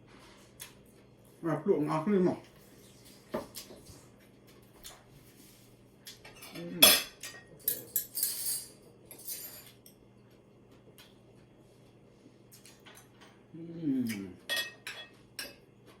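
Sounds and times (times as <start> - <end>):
cutlery clinking on a plate: 6.1 - 10.0, 14.4 - 15.6.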